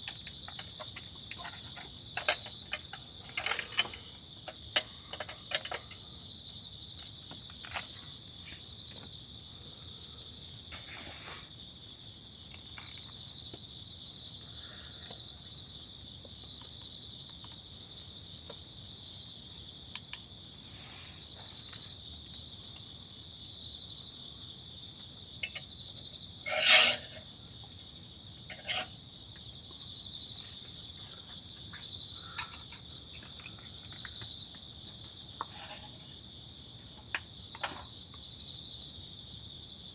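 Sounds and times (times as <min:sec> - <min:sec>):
small clicks and knocks: 0:00.0 - 0:06.1, 0:36.8 - 0:38.0
crickets chirring: 0:00.0 - 0:39.9.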